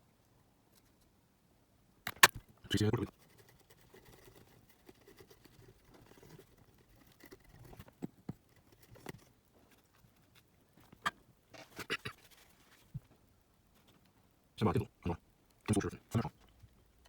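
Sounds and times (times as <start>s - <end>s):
scraping and rustling: 3.1s - 13.2s.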